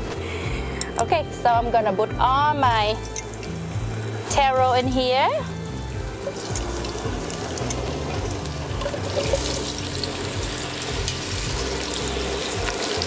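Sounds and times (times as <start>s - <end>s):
soft background music: 0.0s - 13.0s
food sizzling in hot oil: 5.8s - 13.0s.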